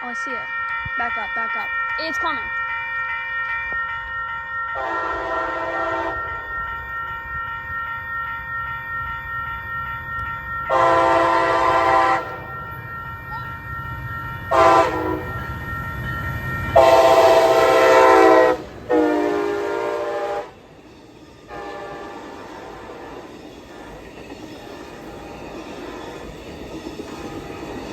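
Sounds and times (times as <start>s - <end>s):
train wheels on rail: 0.0s - 27.9s
locomotive air horn blasts: 4.8s - 6.2s, 10.7s - 12.4s, 14.5s - 15.3s, 16.8s - 20.6s, 21.5s - 22.3s.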